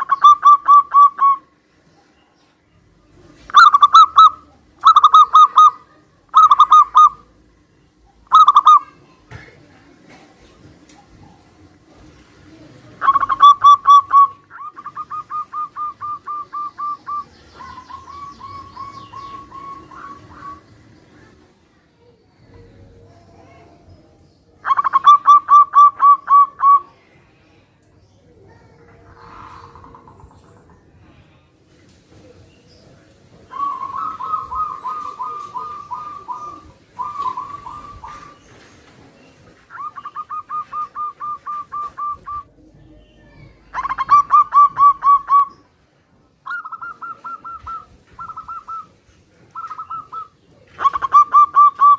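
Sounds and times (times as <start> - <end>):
doves cooing: 0.0 - 1.6, 3.4 - 7.5, 8.1 - 9.0, 9.6 - 21.4, 24.6 - 26.9, 28.9 - 31.1, 33.3 - 45.7, 46.4 - 51.9.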